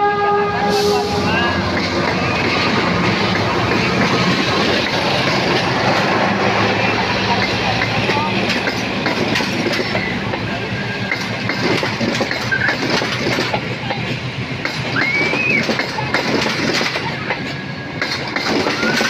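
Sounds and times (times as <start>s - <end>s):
train wheels clattering on rails: 1.6s - 19.0s.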